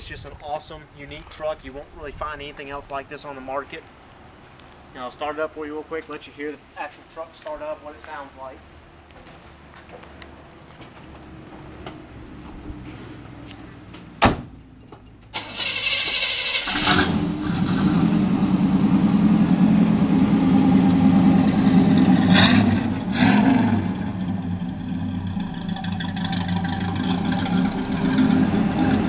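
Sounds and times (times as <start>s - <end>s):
engine running loudly: 16.8s - 29.0s.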